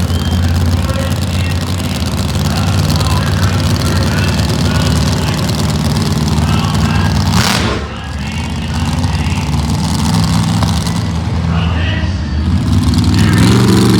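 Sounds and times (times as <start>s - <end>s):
monster truck engine running: 0.0s - 13.9s.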